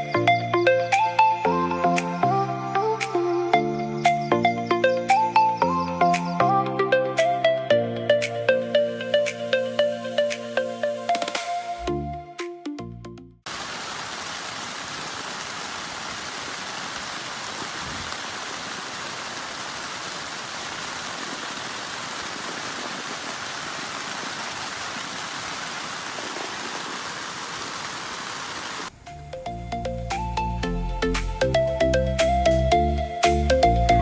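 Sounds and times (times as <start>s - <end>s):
background music: 0.0s - 13.4s, 29.0s - 34.0s
rushing water: 13.5s - 29.1s.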